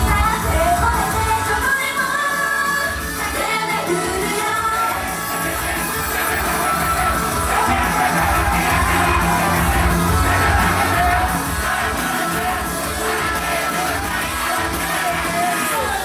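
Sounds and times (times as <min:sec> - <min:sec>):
girls singing pop song: 0:00.0 - 0:16.0
audience shouting: 0:02.3 - 0:16.0.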